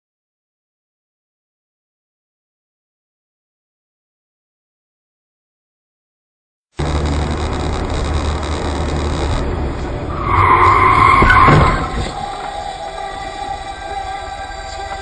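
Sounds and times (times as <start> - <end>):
car tyres screeching: 6.8 - 15.0
road and engine noise: 6.8 - 15.0.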